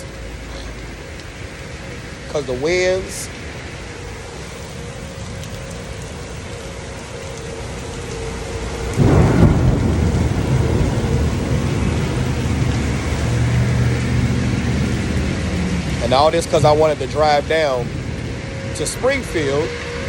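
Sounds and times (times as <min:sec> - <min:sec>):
heavy rain: 0:00.0 - 0:20.0
wind: 0:00.0 - 0:20.0
loud low thunder rumble: 0:06.8 - 0:20.0.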